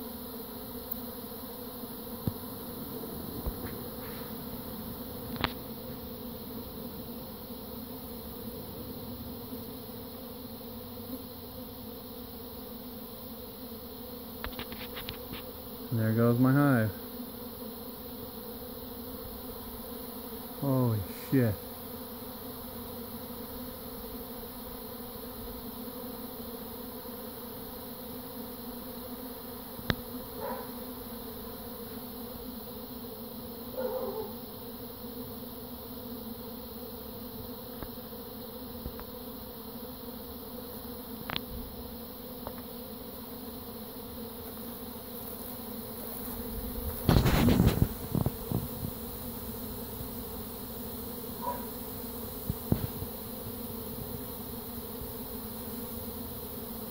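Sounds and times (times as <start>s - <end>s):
bees buzzing: 0.0s - 56.9s
rustling and thumping: 46.2s - 49.0s, 52.4s - 53.2s.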